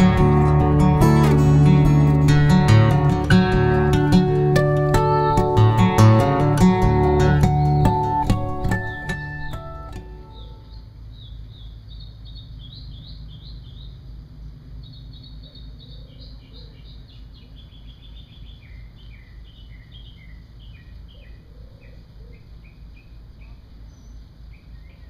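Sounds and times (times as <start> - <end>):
steady low rumble: 0.0 - 15.3
small birds chirping: 0.0 - 25.0.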